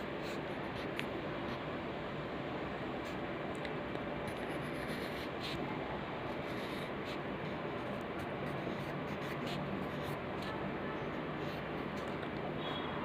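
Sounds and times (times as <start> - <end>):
steady background hiss: 0.0 - 13.0
pencil scratching on paper: 4.3 - 5.6, 6.3 - 10.6.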